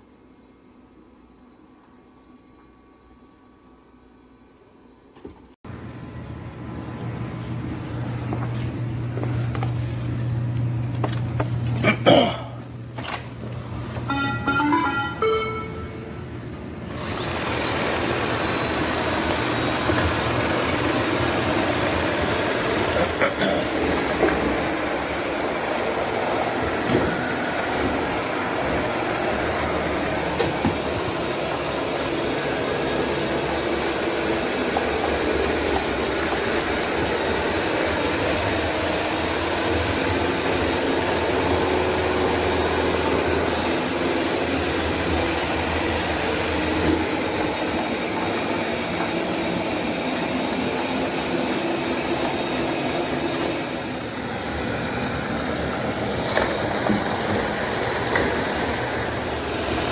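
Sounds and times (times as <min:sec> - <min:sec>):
robot vacuum whirring: 0:16.9 - 0:23.0, 0:23.7 - 0:59.9.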